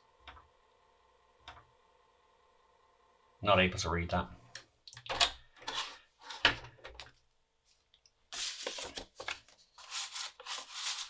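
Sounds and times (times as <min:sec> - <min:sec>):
disk sliding scrapes: 0:05.6 - 0:06.6.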